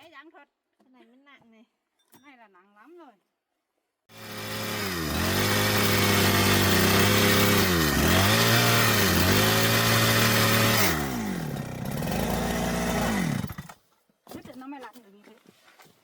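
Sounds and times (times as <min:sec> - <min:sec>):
chainsaw cutting log: 0:04.1 - 0:13.8.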